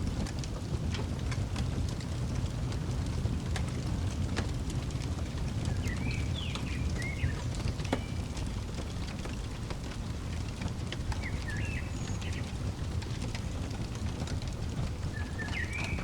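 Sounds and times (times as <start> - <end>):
wood fire crackling: 0.0 - 16.0
songbird chirping: 5.6 - 16.0.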